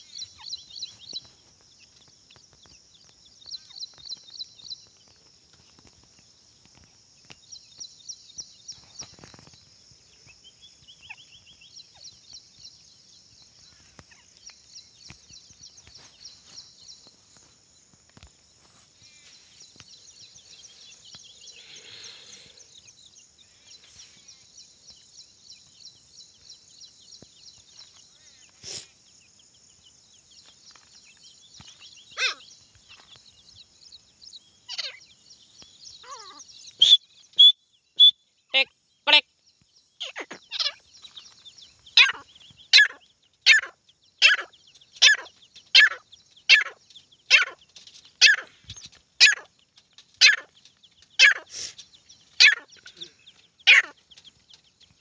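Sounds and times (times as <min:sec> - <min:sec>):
sharp falling bird calls: 0:18.1 - 0:24.4, 0:27.6 - 0:29.0, 0:30.4 - 0:33.3, 0:34.6 - 0:39.2, 0:40.0 - 0:55.0
bird chattering trills: 0:32.0 - 0:33.1, 0:36.0 - 0:39.3, 0:40.0 - 0:54.5.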